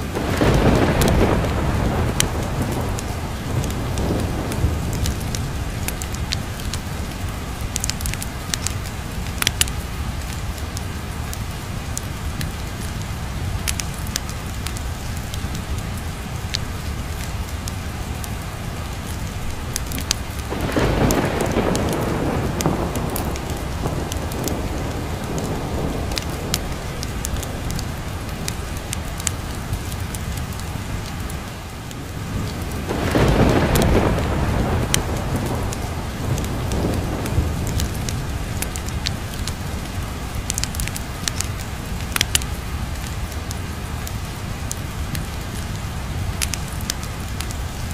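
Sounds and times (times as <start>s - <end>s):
steady rain: 0.0s - 47.9s
wood fire crackling: 0.0s - 47.9s
thunder rolling: 0.1s - 7.1s, 19.5s - 30.0s, 32.2s - 41.4s.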